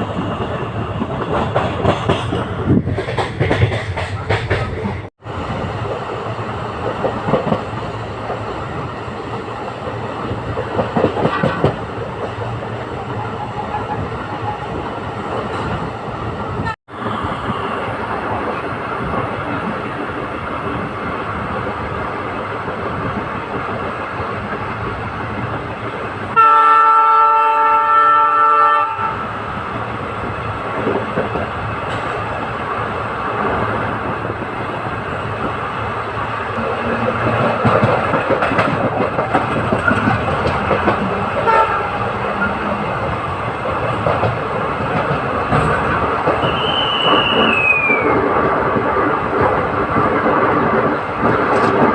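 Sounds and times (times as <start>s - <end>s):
train running noise: 0.0s - 51.9s
train wheels rumbling on track: 0.0s - 51.9s
locomotive horn chord: 26.4s - 29.1s.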